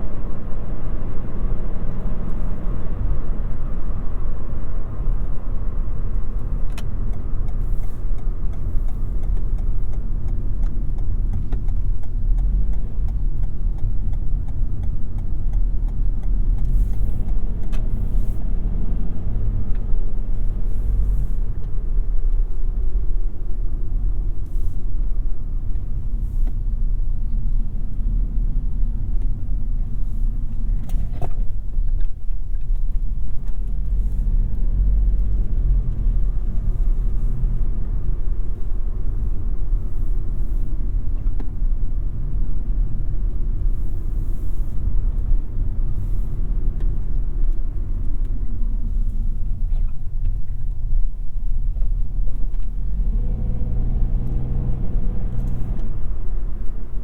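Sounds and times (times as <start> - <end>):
tyre and road rumble: 25.1 - 57.0.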